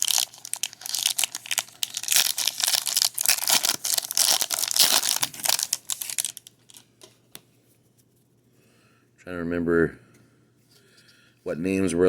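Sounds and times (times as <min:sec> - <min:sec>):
wrappers crinkling and tearing: 0:00.0 - 0:06.8.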